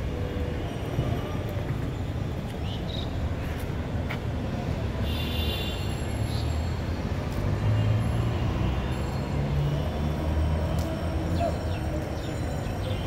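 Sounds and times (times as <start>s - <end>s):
low rumble of trains: 0.0s - 5.1s.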